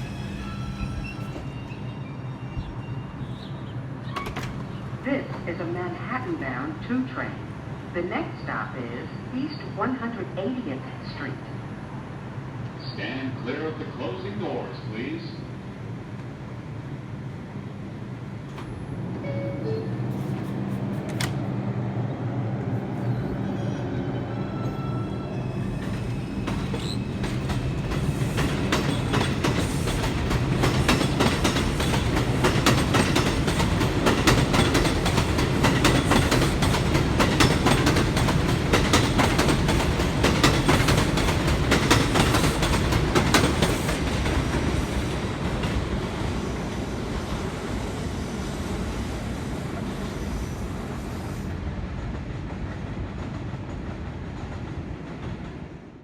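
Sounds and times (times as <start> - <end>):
subway train running on track: 0.0 - 56.0
wheels clicking over rail joints: 26.5 - 44.4.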